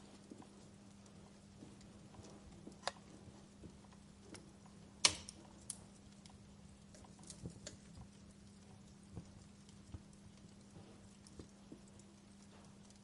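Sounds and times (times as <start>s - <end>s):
faint steady hum: 0.0s - 13.0s
wood fire crackling: 0.0s - 13.0s.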